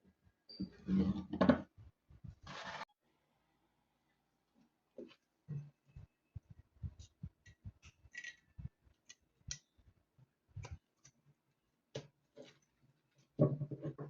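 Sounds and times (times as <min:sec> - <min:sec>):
small parts and tools clicking: 0:07.4 - 0:09.7.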